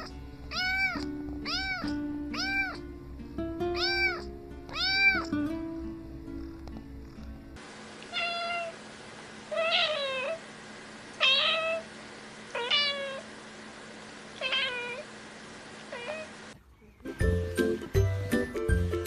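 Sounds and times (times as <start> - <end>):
cat meowing: 0.0 - 2.8, 3.7 - 5.4, 8.1 - 8.8, 9.5 - 10.4, 11.2 - 11.9, 12.5 - 13.3, 14.4 - 15.0, 15.9 - 16.3.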